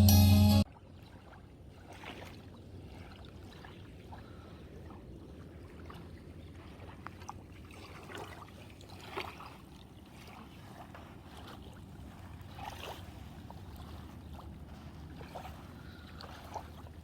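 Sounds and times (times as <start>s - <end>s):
paddle splashing in water: 0.9s - 4.4s, 5.6s - 17.0s.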